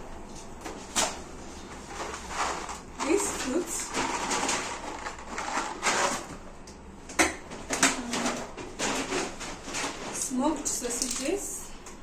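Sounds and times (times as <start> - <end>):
plastic packaging crinkling: 2.0 - 6.3.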